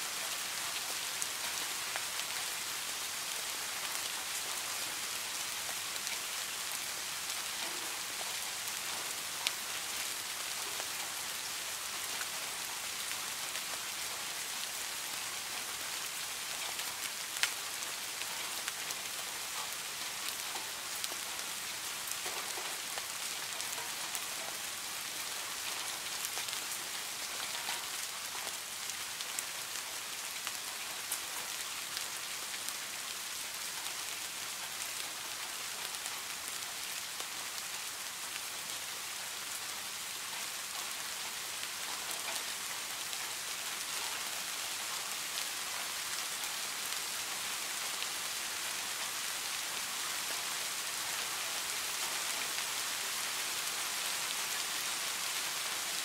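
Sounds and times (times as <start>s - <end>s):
rain falling on pond water: 0.0s - 56.0s.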